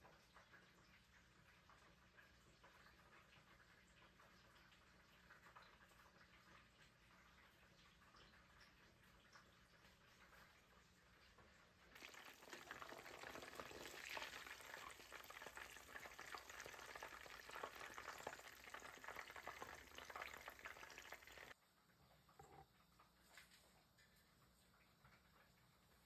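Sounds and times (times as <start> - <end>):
chicken sizzling in oil: 0.8 - 21.6.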